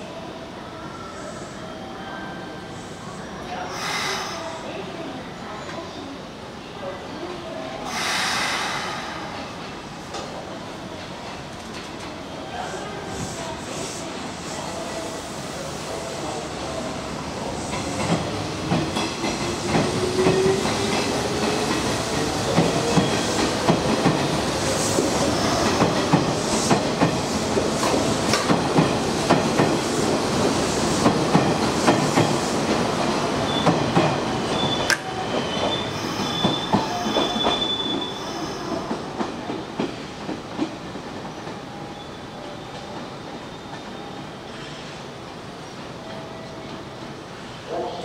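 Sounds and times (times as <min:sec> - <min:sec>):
high wheel squeal: 0:34.4 - 0:38.7.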